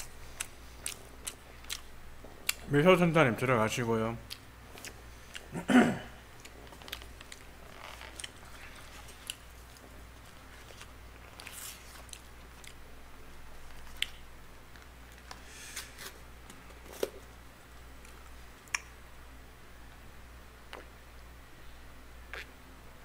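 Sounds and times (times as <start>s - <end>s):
wet chewing: 0.0s - 2.7s, 6.4s - 12.8s, 13.7s - 14.2s
low steady hum: 0.0s - 23.0s.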